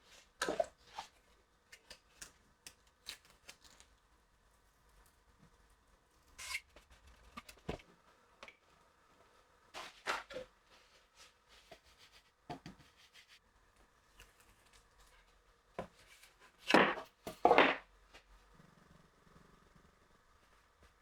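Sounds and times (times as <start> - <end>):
wooden pieces knocking: 16.7 - 17.8.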